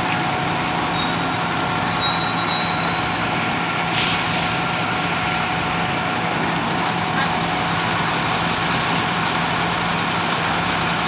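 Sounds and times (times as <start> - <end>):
burst of hiss: 3.9 - 5.3.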